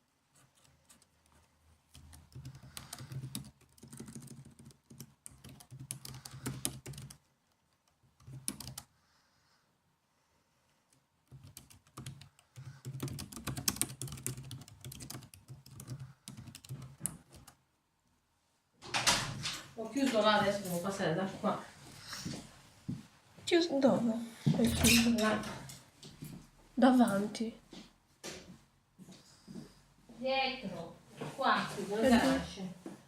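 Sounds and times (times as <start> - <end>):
typing on laptop keyboard: 0.4 - 8.9, 11.2 - 17.6.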